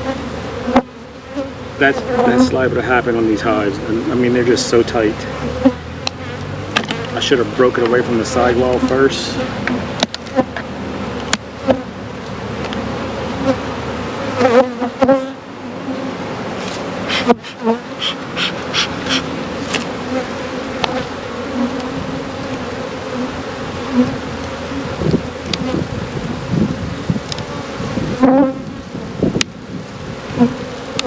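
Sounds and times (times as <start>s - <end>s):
knocks and scrapes on hive: 0.0s - 29.6s
honeybees buzzing: 0.0s - 31.0s.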